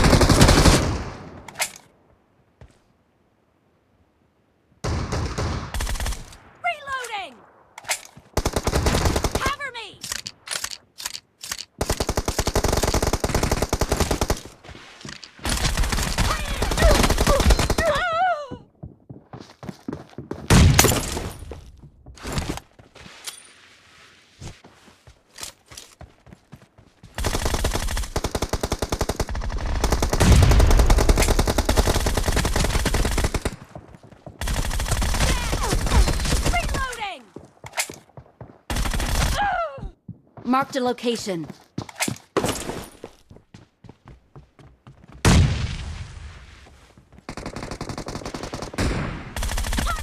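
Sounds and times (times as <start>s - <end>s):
video game automatic gunfire: 49.4s - 50.0s.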